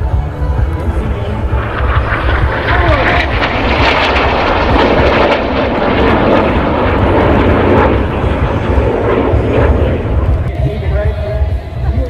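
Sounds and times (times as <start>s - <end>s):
jets flying overhead: 0.0s - 11.8s.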